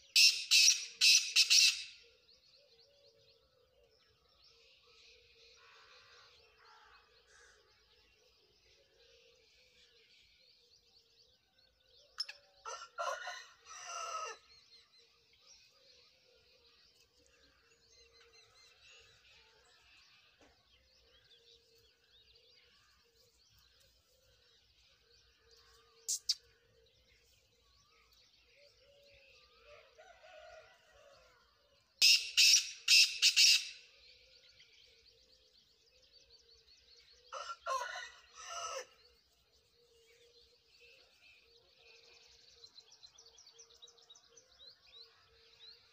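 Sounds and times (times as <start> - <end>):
small birds chirping: 14.9 - 30.6.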